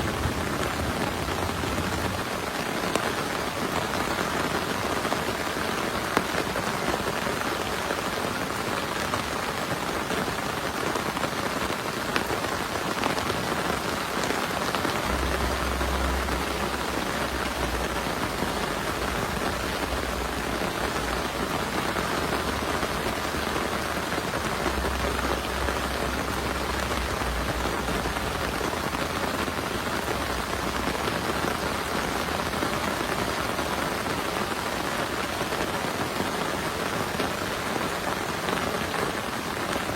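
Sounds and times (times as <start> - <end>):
low rumble: 0.0 - 2.3, 15.0 - 21.3
heavy rain falling: 0.0 - 39.9.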